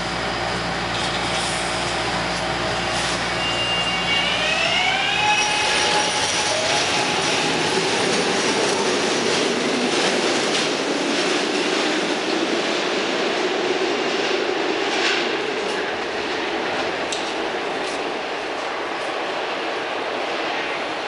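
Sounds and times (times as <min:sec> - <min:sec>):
subway train rumbling: 0:00.0 - 0:21.0
rail clacks: 0:05.4 - 0:19.2.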